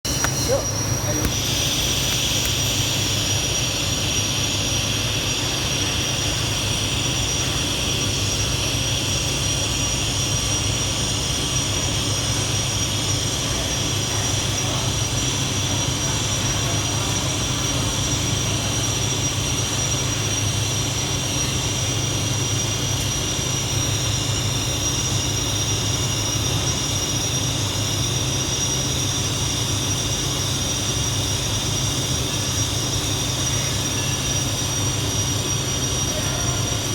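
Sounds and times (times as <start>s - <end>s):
welding arc hissing and buzzing: 0.1s - 8.7s.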